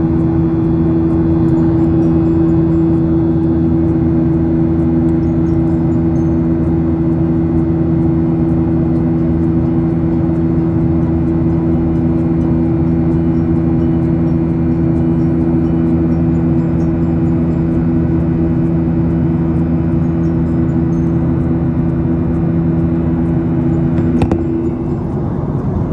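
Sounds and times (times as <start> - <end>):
jet airliner cabin drone: 0.0 - 25.9.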